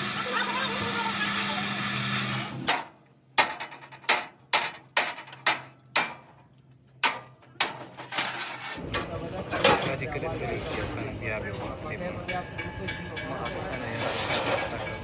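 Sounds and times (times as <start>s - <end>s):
hammer ringing on steel: 12.0s - 15.0s.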